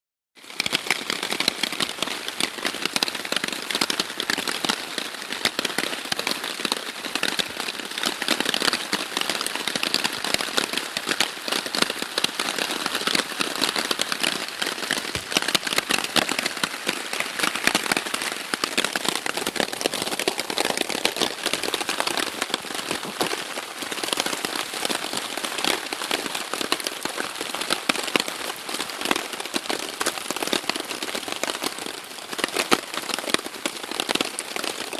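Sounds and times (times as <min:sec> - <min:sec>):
rain on a tarp: 0:00.4 - 0:34.9.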